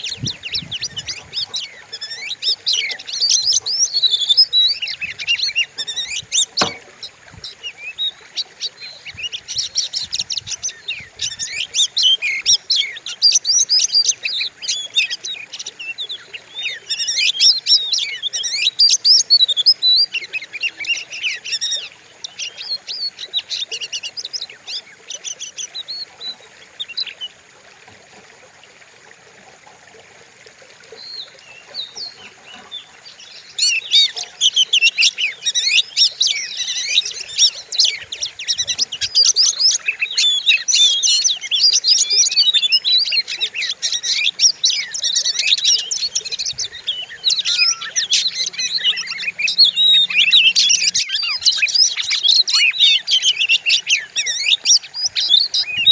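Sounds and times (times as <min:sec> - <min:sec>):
bird singing chirps and whistles: 0:33.2 - 0:55.9.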